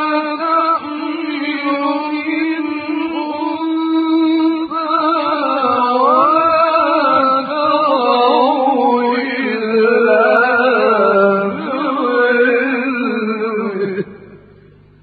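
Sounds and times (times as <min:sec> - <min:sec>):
man chanting melodically: 0:00.0 - 0:14.7.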